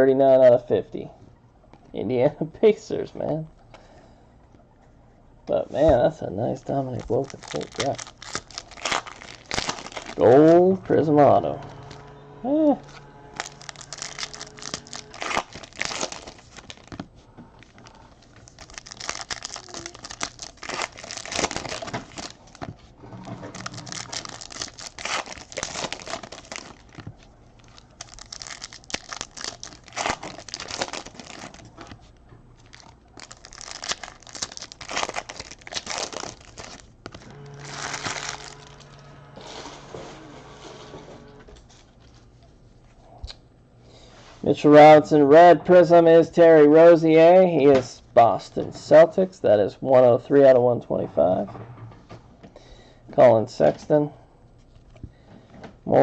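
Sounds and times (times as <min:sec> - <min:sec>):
card pack wrappers tearing: 0:06.7 - 0:11.1, 0:13.0 - 0:17.0, 0:17.6 - 0:32.0, 0:32.6 - 0:39.7
cards being handled: 0:23.5 - 0:39.0.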